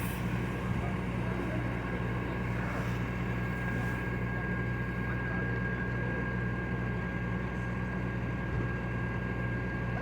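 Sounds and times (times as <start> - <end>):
vehicle engine idling: 0.0 - 6.2
steady high whine: 0.0 - 7.1.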